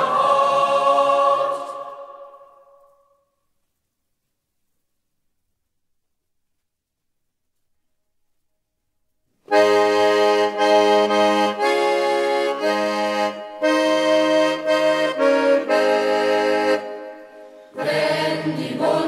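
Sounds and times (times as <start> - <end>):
accordion chords with bass notes: 9.5 - 18.6.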